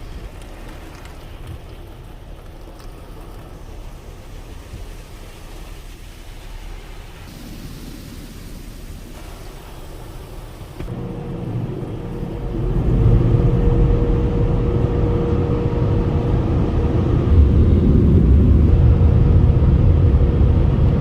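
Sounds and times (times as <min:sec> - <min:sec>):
car wash machinery rumbling: 0:00.0 - 0:21.0.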